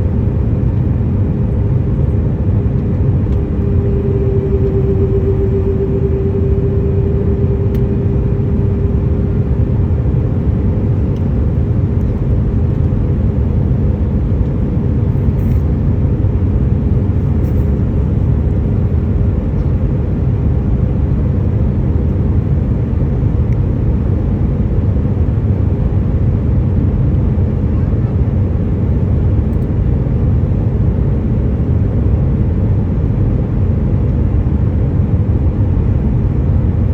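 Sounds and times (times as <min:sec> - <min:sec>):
jet engines rumbling: 0:00.0 - 0:12.5
steady hum: 0:00.0 - 0:13.6.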